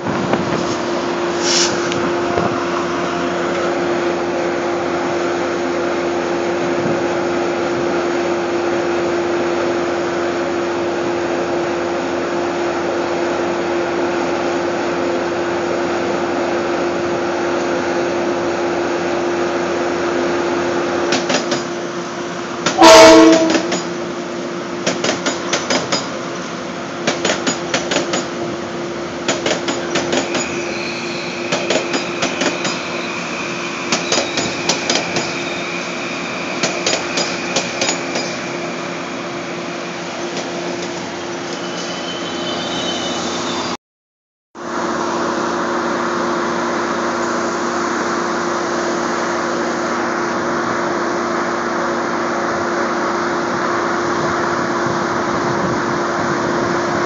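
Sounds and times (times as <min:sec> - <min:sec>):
electric train rushing past: 0:00.0 - 0:43.8, 0:44.6 - 0:57.0
train horn blast: 0:22.7 - 0:23.8, 0:42.0 - 0:43.6.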